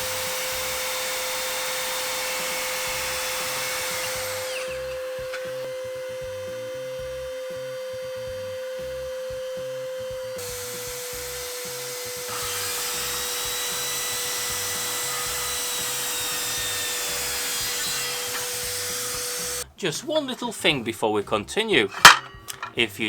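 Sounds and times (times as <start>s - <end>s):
saw cutting through board: 0.0s - 19.6s
circular saw whining: 0.0s - 19.7s.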